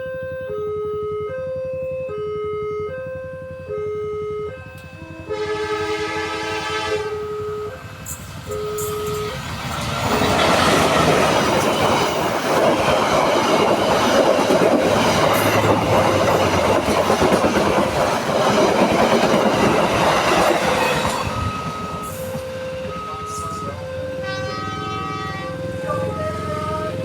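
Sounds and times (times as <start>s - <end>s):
electronic crossing warning tones: 0.1s - 27.0s
train wheels clattering on rails: 7.9s - 22.6s.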